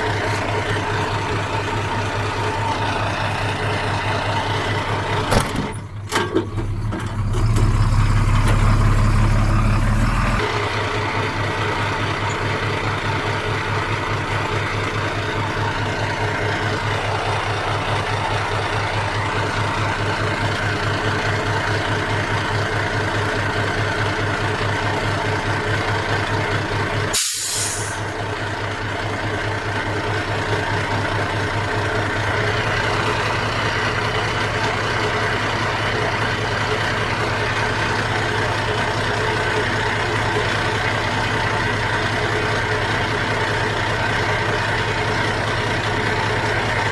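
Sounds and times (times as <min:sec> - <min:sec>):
heavy diesel engine running: 0:00.0 - 0:46.9
short hiss: 0:27.2 - 0:28.0.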